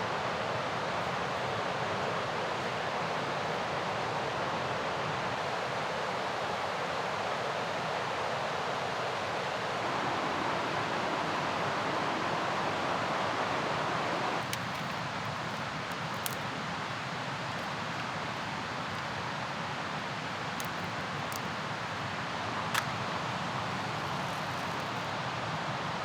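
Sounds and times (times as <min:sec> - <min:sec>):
faint clicks: 0:14.4 - 0:26.0.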